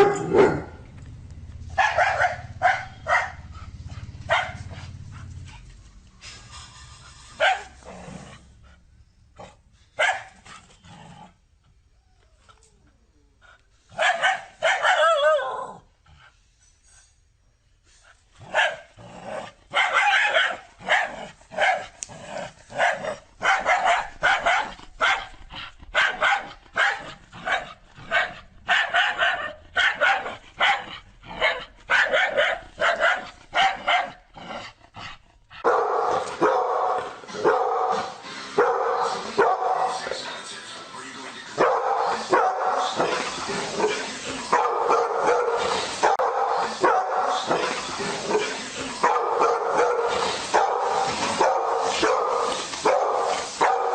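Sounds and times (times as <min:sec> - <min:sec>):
dog barking: 0:00.0 - 0:00.8, 0:01.7 - 0:03.5, 0:04.2 - 0:04.8, 0:07.4 - 0:07.8, 0:10.0 - 0:10.4, 0:13.9 - 0:15.7, 0:18.5 - 0:18.9, 0:19.7 - 0:22.0, 0:22.7 - 0:34.2, 0:35.6 - 0:40.0, 0:41.6 - 0:43.2, 0:43.8 - 0:53.9.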